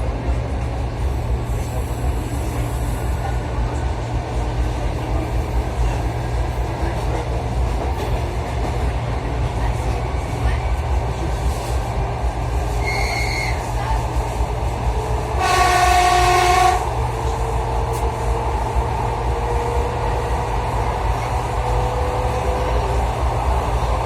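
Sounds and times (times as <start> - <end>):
train rumble inside carriage: 0.0 - 24.0
train horn: 15.4 - 17.0.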